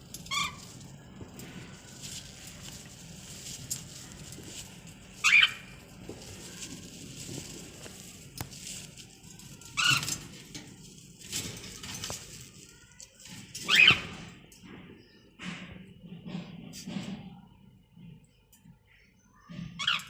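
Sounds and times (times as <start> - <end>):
pet bird sharp calls: 5.2 - 5.8, 13.6 - 14.2.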